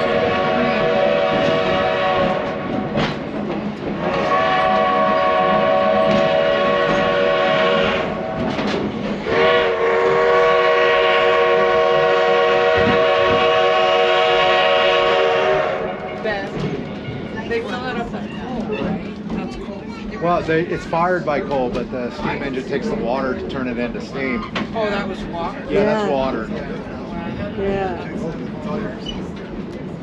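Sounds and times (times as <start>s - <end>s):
steam locomotive chime whistle: 4.1s - 8.2s.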